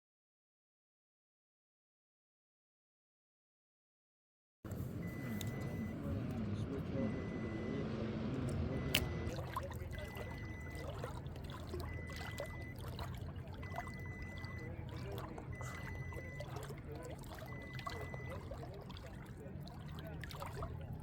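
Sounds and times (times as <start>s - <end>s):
steady low hum: 4.7s - 21.0s
water trickling and lapping: 4.7s - 21.0s
faint high beep: 5.0s - 7.9s, 8.7s - 18.8s
small splashes: 7.1s - 21.0s.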